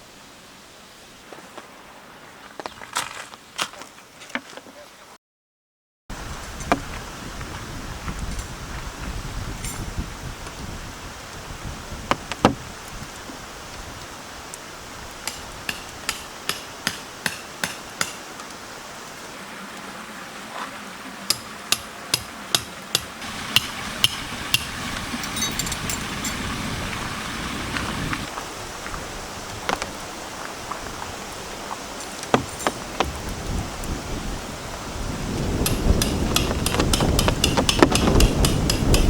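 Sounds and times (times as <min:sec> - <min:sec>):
wind: 0:00.0 - 0:05.2, 0:06.1 - 0:39.0
rain hissing: 0:06.1 - 0:21.8, 0:22.5 - 0:39.0
tent pegs being hammered: 0:15.3 - 0:18.3, 0:21.3 - 0:24.7, 0:32.3 - 0:33.1, 0:35.6 - 0:39.0.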